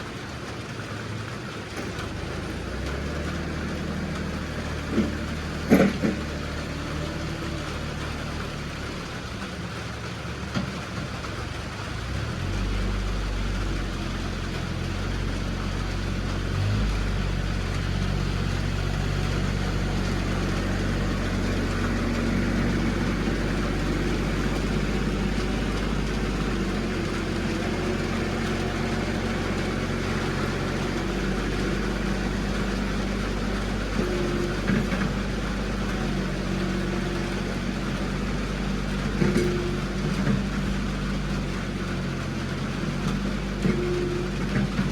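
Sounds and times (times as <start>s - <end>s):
vehicle engine running: 0.0s - 44.9s.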